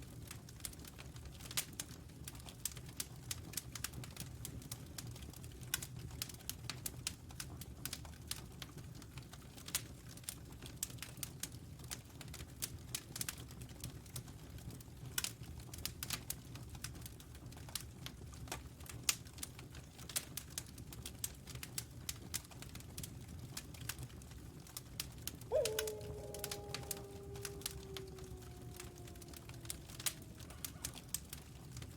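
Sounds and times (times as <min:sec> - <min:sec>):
wolf howling: 0:25.5 - 0:31.9.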